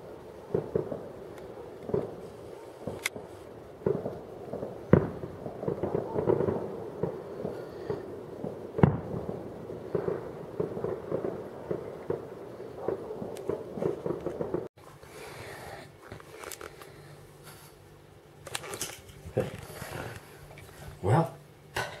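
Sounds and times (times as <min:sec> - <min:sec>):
loud firework bangs: 0:00.0 - 0:14.7
fireworks crackling and popping: 0:00.0 - 0:21.2.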